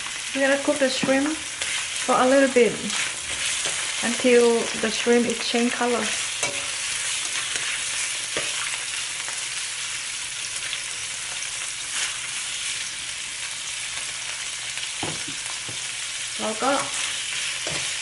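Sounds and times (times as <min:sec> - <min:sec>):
shrimp sizzling in hot oil: 0:00.0 - 0:18.0
spatula scraping a wok: 0:00.8 - 0:09.4, 0:16.6 - 0:18.0.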